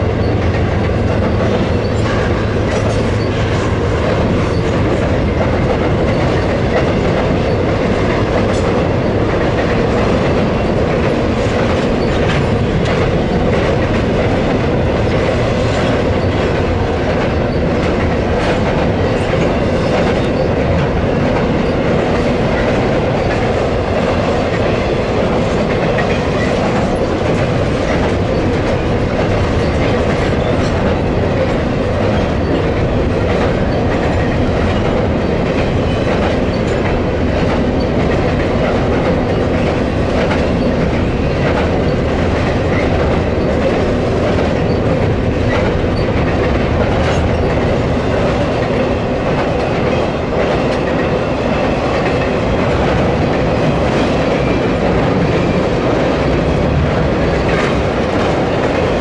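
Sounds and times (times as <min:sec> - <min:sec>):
train wheels clicking over rail joints: 0:00.0 - 0:59.0.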